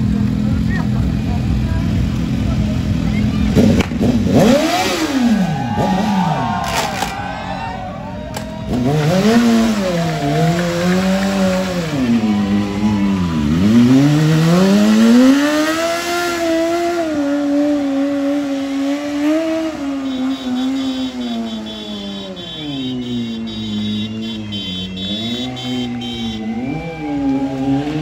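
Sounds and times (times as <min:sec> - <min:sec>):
motorcycle engine revving: 0:00.0 - 0:07.2, 0:08.4 - 0:28.0.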